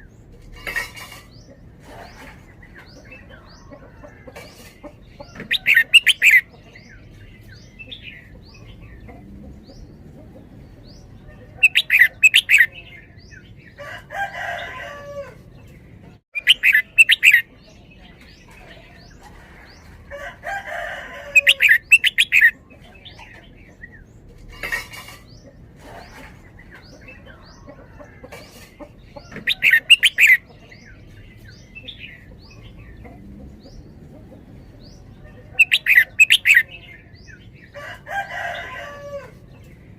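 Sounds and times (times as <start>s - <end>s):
bird singing rapid loud notes: 16.3s - 17.5s.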